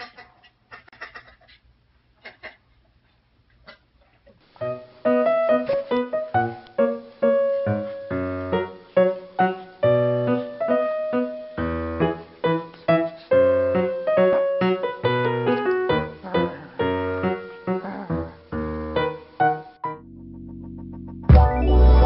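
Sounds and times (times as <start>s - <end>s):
piano melody: 4.6s - 22.0s.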